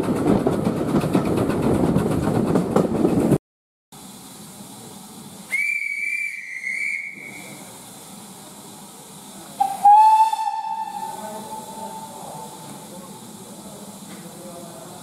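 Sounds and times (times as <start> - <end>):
steam hissing: 4.0 - 15.0
steam locomotive whistle: 5.5 - 7.6, 9.6 - 12.5.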